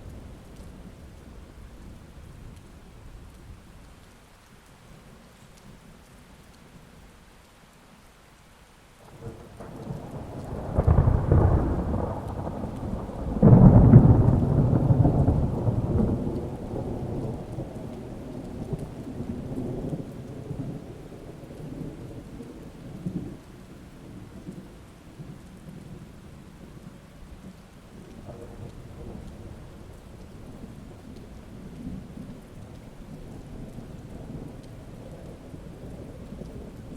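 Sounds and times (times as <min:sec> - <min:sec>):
steady rain: 0:00.0 - 0:36.9
thunder rolling: 0:09.1 - 0:23.4.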